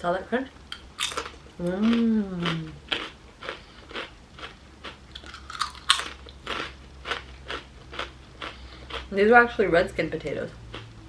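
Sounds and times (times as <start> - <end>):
chewing crispy potato chips: 0.7 - 9.2.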